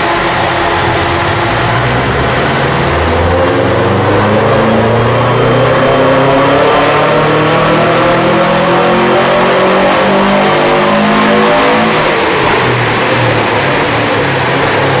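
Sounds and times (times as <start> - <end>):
car engine running hard: 0.0 - 15.0
tyres driving dyno rollers: 0.0 - 15.0.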